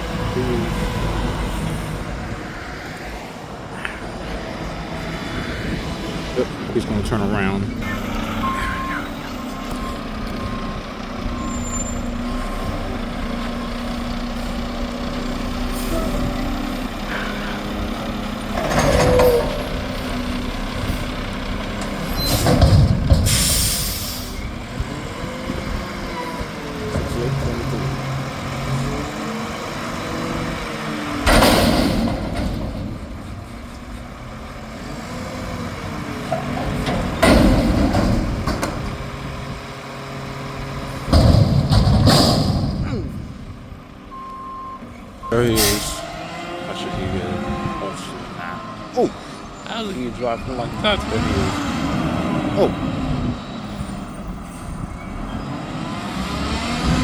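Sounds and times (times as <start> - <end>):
garbage truck diesel engine: 0.0 - 57.0
air brakes hissing: 23.2 - 24.5, 45.6 - 46.1.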